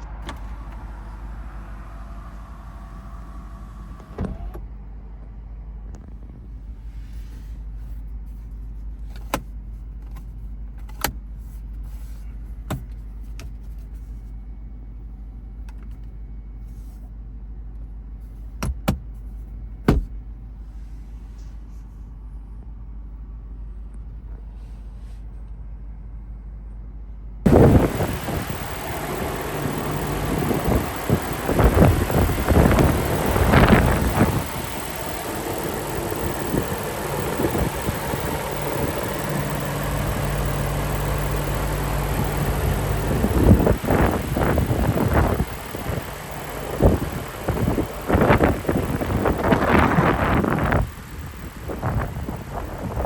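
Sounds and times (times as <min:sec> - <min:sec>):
short motor whine: 0:00.0 - 0:04.7, 0:27.5 - 0:53.0
low rumble inside car: 0:00.0 - 0:53.0
sharp clicks: 0:27.5 - 0:52.8.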